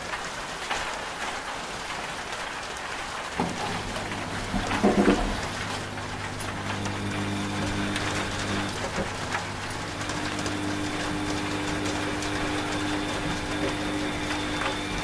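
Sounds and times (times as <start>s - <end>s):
rain pattering: 0.0s - 15.0s
washing machine motor hum: 3.4s - 15.0s.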